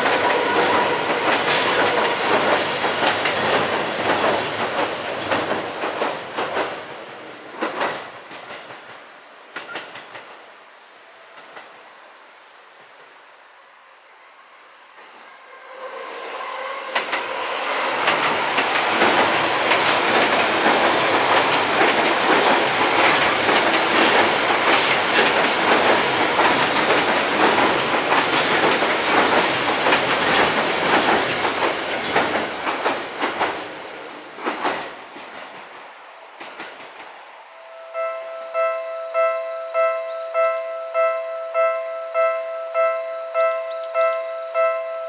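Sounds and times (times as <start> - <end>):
wheels clacking over rail joints: 0.0 - 10.4, 16.9 - 37.2
train rumbling over steel bridge: 0.0 - 45.0.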